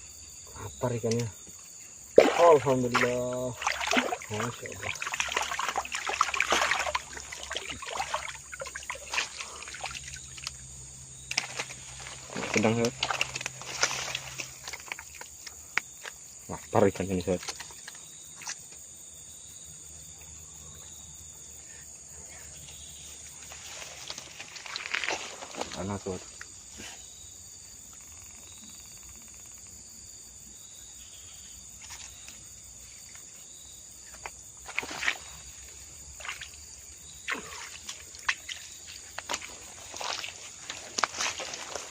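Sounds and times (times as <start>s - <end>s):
insects chirring: 0.0s - 41.9s
water splashing and trickling: 0.5s - 18.9s, 23.0s - 26.9s, 31.7s - 41.9s
water drips: 2.2s - 15.9s, 34.2s - 41.9s.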